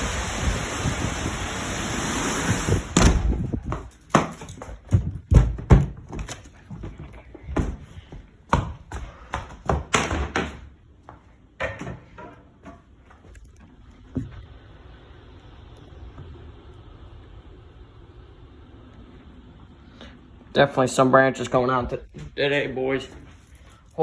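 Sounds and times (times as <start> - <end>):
windstorm: 0.0 - 3.9
thumps and knocks: 3.0 - 7.9, 8.5 - 10.7, 11.6 - 12.9.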